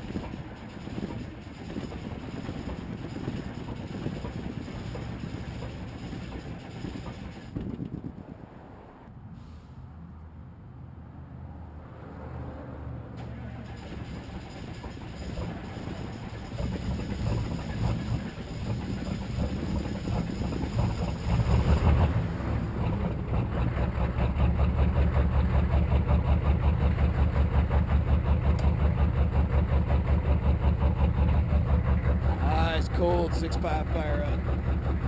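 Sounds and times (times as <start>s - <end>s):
diesel truck engine starting: 0.0s - 8.3s, 13.2s - 35.0s.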